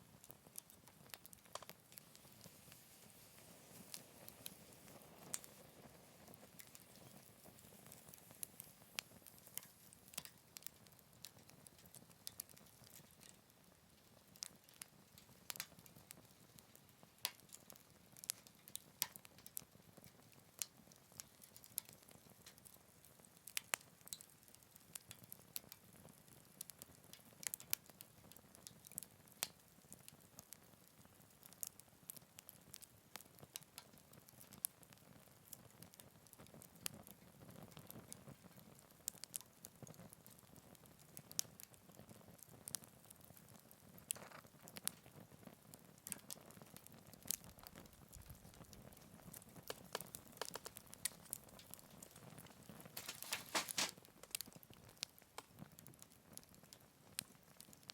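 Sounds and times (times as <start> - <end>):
low hiss of flames: 0.0 - 19.1, 42.4 - 54.6
fire crackling and popping: 0.0 - 57.9.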